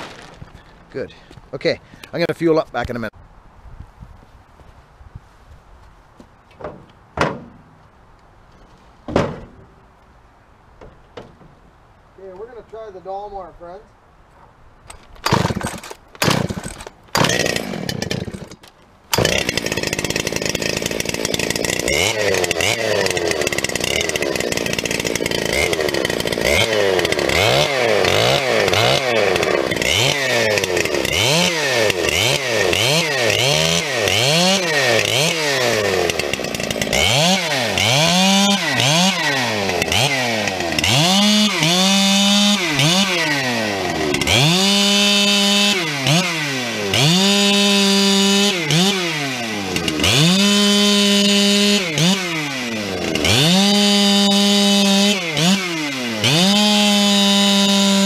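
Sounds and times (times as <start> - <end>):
chainsaw revving: 15.2 - 58.0.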